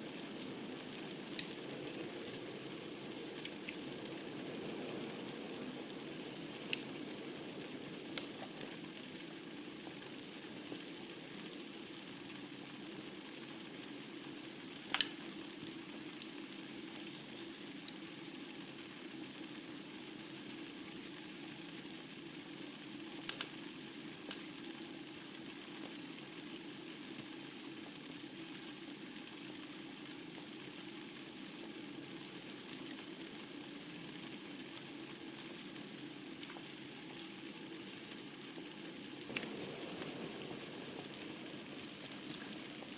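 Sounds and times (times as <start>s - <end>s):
wood burning in fireplace: 0.0s - 16.4s, 23.1s - 24.5s, 32.4s - 42.9s.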